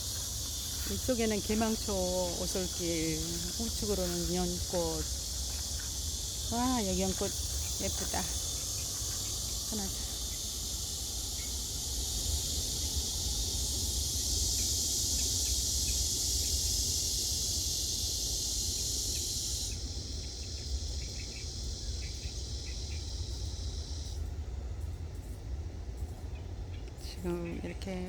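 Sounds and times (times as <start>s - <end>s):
low steady rumble: 0.0s - 14.6s
insects shrilling: 0.0s - 24.2s.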